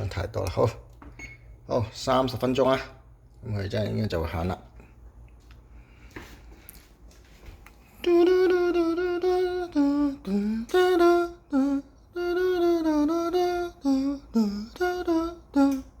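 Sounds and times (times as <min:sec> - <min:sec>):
person humming: 0:08.0 - 0:16.0.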